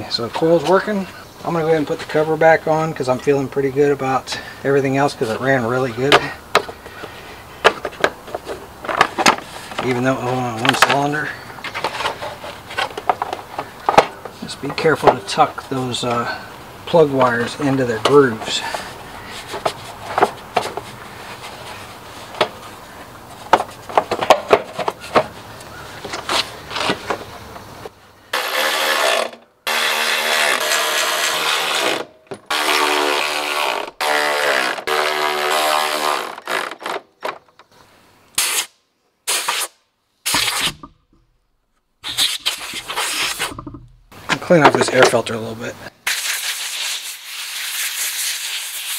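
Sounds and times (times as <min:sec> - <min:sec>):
clicks and knocks of cover fitting: 0:06.1 - 0:09.9, 0:11.6 - 0:15.3, 0:23.5 - 0:25.3.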